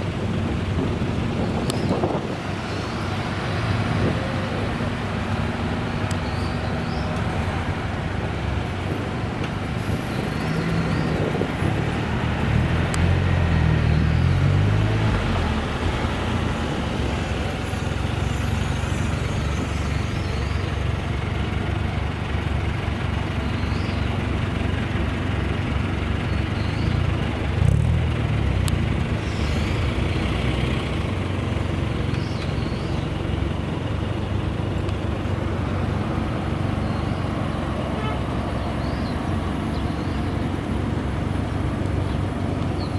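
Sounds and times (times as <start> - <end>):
car engines driving past: 0.0 - 42.9.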